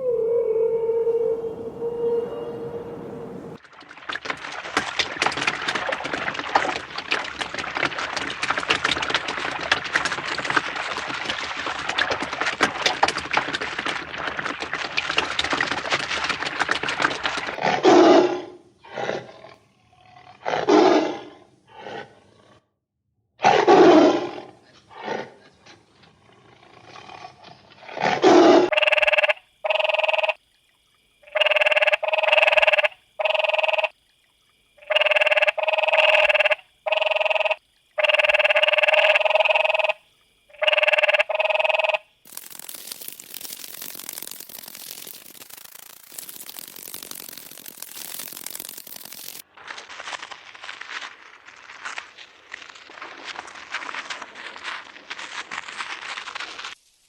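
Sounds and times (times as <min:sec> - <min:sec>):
rasping animal growl: 0:17.5 - 0:22.7.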